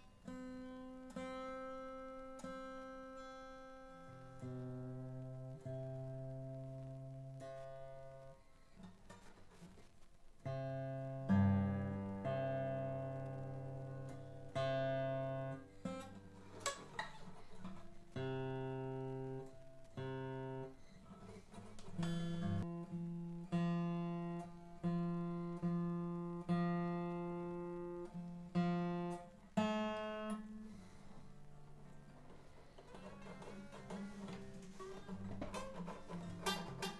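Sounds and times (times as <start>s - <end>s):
acoustic guitar chords strummed: 10.4s - 36.9s.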